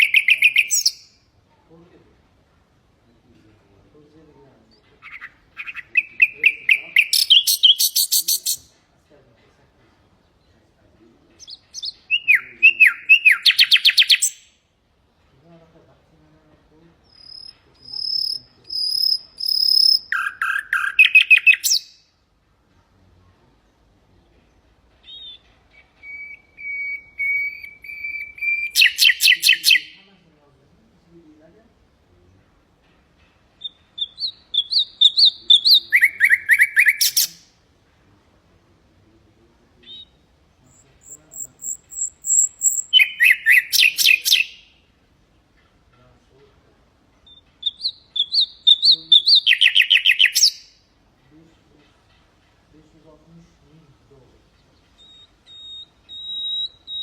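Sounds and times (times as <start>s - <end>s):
nightingale singing: 0.0s - 1.3s, 4.6s - 8.7s, 10.2s - 14.6s, 17.0s - 22.2s, 24.2s - 30.1s, 33.5s - 37.6s, 39.8s - 44.9s, 47.1s - 51.0s, 54.1s - 57.0s.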